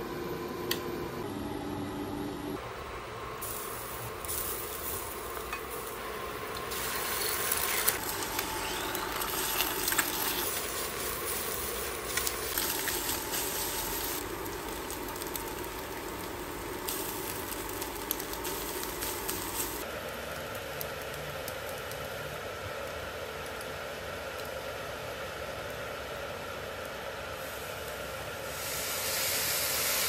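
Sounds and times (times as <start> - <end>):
eggs frying in oil: 4.0 - 26.2.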